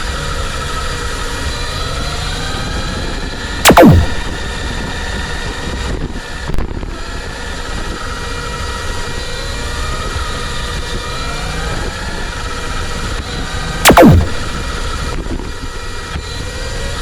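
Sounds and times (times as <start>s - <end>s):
sweep falling in pitch: 3.7s - 4.4s, 13.9s - 14.6s.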